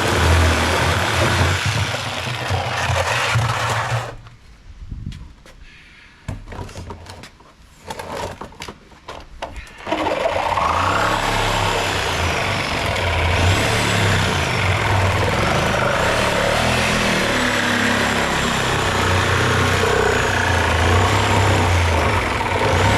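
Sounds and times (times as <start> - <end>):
vehicle engine starting and running: 0.0 - 4.2, 9.8 - 22.9.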